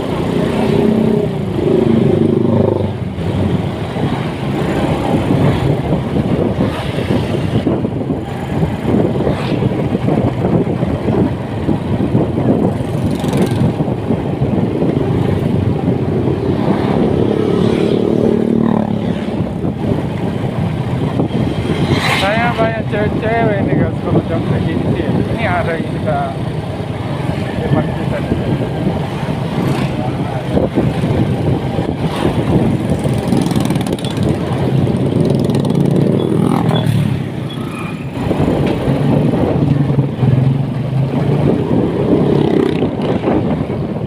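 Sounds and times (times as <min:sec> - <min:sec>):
wind noise: 0:00.0 - 0:44.0
motorcycle engine running: 0:26.3 - 0:37.6.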